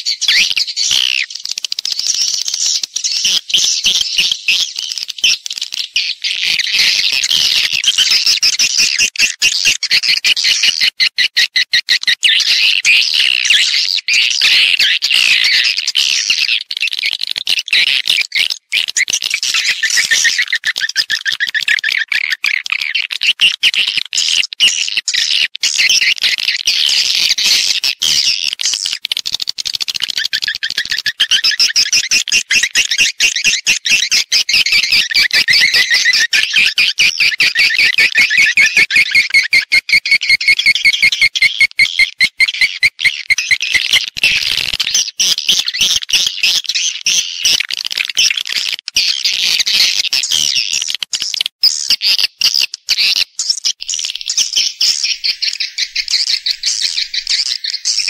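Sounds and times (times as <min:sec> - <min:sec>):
swiftlets chirping and twittering: 0:00.0 - 0:10.5, 0:12.1 - 0:58.0.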